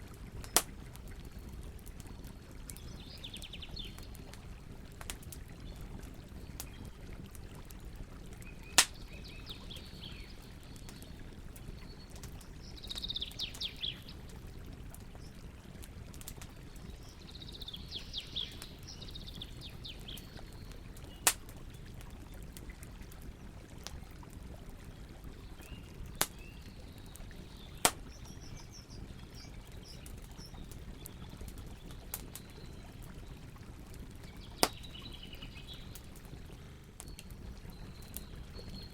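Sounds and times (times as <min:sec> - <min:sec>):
campfire crackling: 0:00.0 - 0:38.9
birds chirping: 0:08.4 - 0:14.2, 0:16.8 - 0:21.3, 0:34.2 - 0:38.9.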